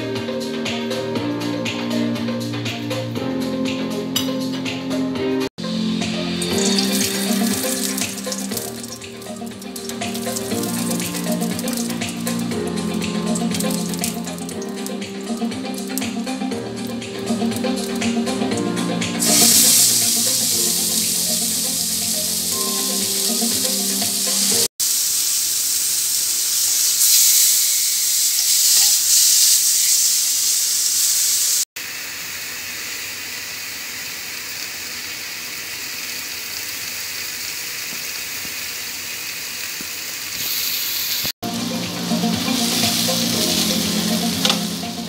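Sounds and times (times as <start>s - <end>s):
background music: 0.0s - 24.7s, 41.4s - 45.0s
chicken sizzling in a grill pan: 6.1s - 14.9s, 19.2s - 45.0s.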